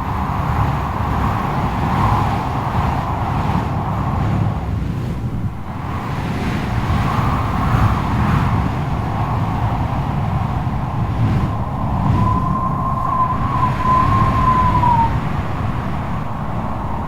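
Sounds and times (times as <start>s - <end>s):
strong gusting wind howling: 0.0s - 17.0s
high whistling howl: 10.4s - 17.0s.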